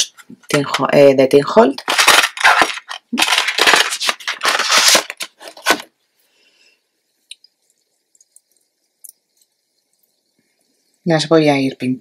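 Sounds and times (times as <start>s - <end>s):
plastic packaging crinkling: 1.6s - 5.9s.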